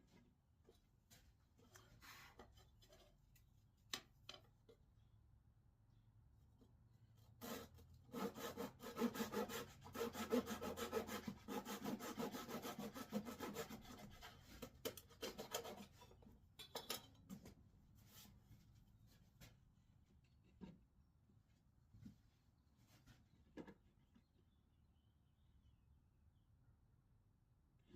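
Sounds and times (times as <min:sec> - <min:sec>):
hand tool rubbing wood: 0:07.4 - 0:14.4.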